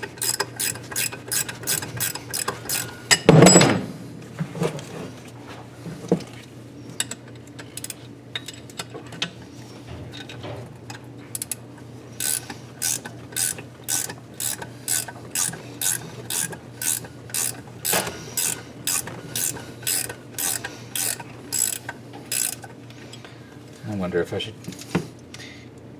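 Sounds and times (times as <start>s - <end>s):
ratchet wrench clicking: 0.0s - 3.0s, 7.8s - 8.0s, 11.3s - 11.6s, 12.2s - 22.7s.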